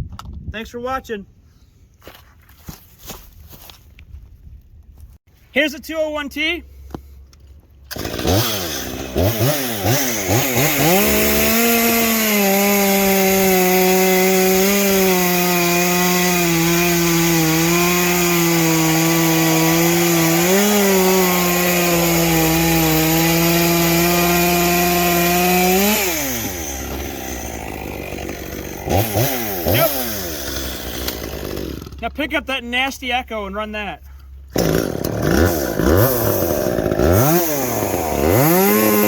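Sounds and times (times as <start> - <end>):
chainsaw revving and cutting: 7.9 - 32.3, 34.5 - 39.0.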